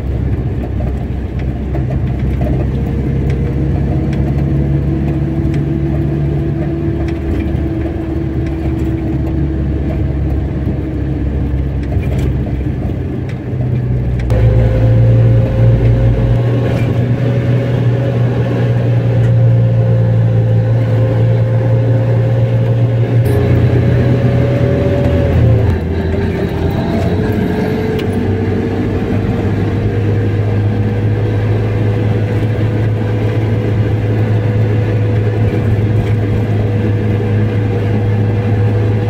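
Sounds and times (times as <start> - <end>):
car engine and road noise: 0.0 - 39.0.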